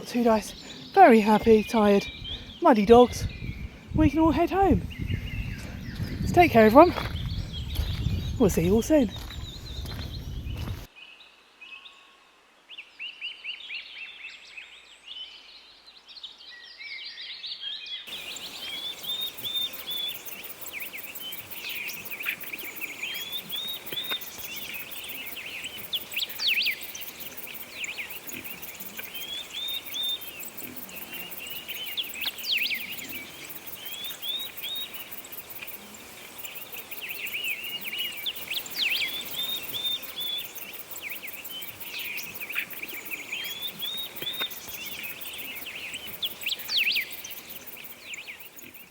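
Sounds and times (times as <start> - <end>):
birds chirping: 0.0 - 10.9, 18.1 - 48.9
steady hiss: 18.1 - 48.9.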